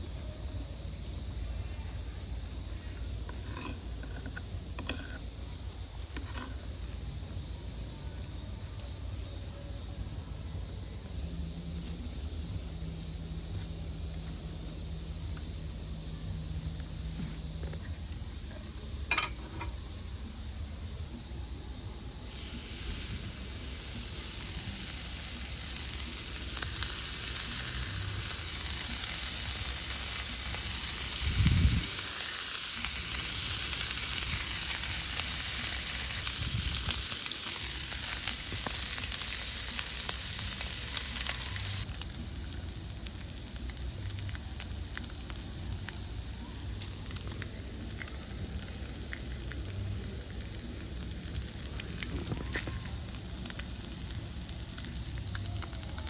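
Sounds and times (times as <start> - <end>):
bacon sizzling: 0.8 - 10.5, 21.1 - 56.0.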